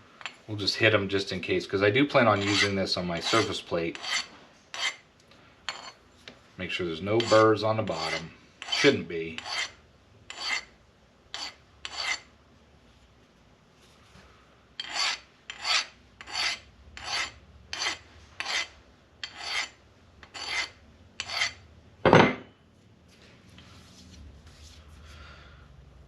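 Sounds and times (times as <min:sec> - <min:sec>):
hand file scraping aluminium: 0:02.3 - 0:05.0, 0:05.7 - 0:06.0, 0:07.2 - 0:10.7, 0:11.3 - 0:12.3, 0:14.8 - 0:21.6.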